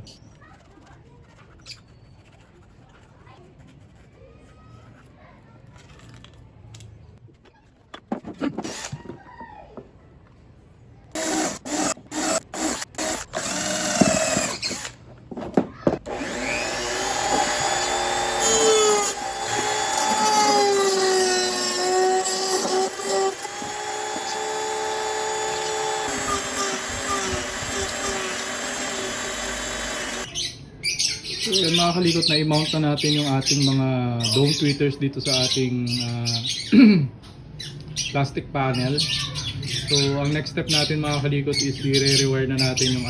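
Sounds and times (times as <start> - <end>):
power drill drilling into plastic: 11.2 - 15.0, 16.1 - 30.3.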